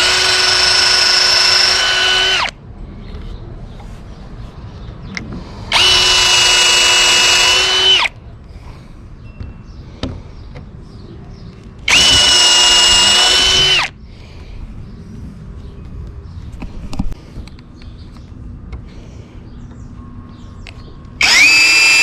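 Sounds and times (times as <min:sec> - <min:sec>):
power drill boring into wood: 0:00.0 - 0:02.5, 0:05.7 - 0:08.1, 0:11.9 - 0:13.9, 0:21.2 - 0:22.0.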